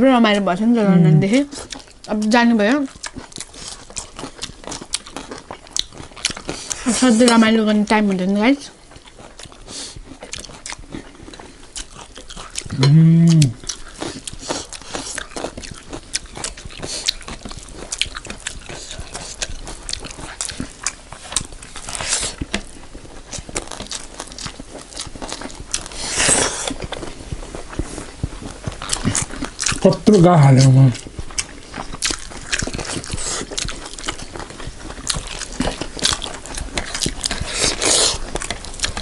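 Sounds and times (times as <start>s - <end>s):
person humming mmm: 0.8s - 1.4s, 12.6s - 13.7s
chewing and lip smacking: 1.5s - 7.5s, 8.6s - 39.0s.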